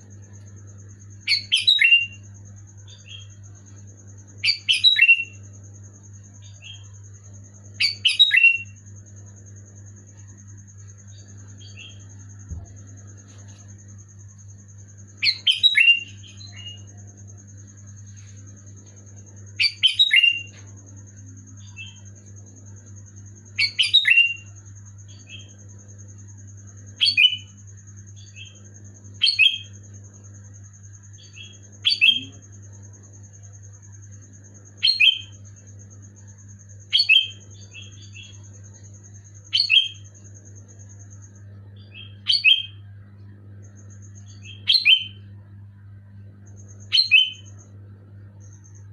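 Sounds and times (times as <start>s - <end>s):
bird singing bubbly phrases: 15.2s - 17.1s.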